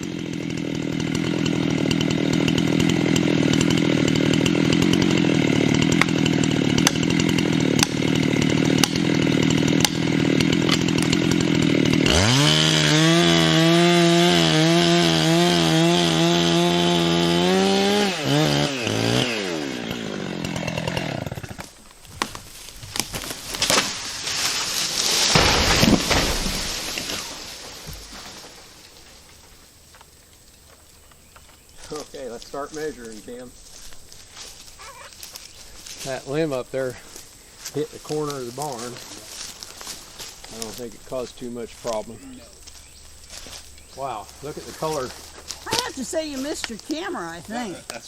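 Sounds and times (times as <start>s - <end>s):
tree cracking and snapping: 0.0s - 15.3s, 18.3s - 36.4s, 37.1s - 48.0s
chainsaw cutting wood: 0.0s - 48.0s
tree hitting ground with thud: 21.0s - 28.7s.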